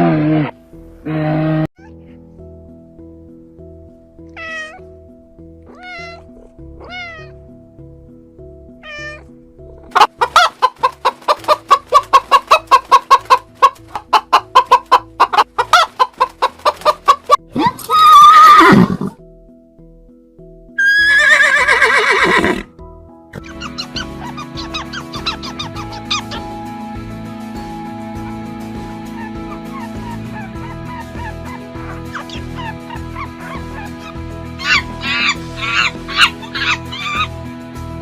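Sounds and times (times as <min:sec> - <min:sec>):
background music: 0:00.0 - 0:38.0
cat meowing: 0:01.7 - 0:02.1, 0:04.3 - 0:04.9, 0:05.6 - 0:07.4, 0:08.8 - 0:09.3
chicken clucking: 0:09.9 - 0:17.4, 0:23.4 - 0:26.4.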